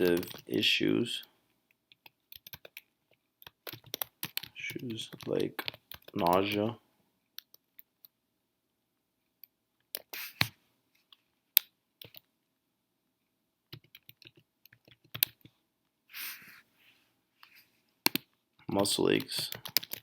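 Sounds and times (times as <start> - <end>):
computer keyboard typing: 0.0 - 0.5, 1.9 - 6.7, 12.0 - 12.2, 13.7 - 15.5, 18.0 - 18.3, 19.1 - 20.0.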